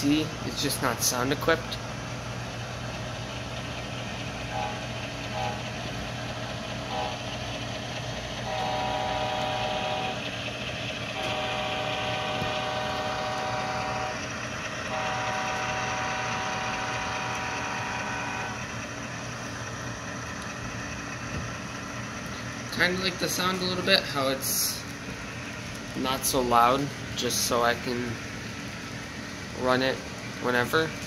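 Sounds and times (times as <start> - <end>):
diesel engine running: 0.0 - 31.0
diesel air horn blasts: 4.5 - 5.8, 6.8 - 7.4, 8.4 - 10.3, 11.1 - 18.7.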